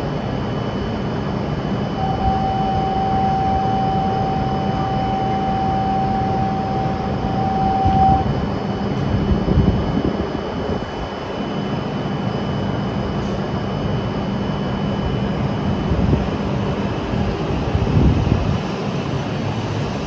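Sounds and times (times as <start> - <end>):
steady tone: 0.0 - 16.7.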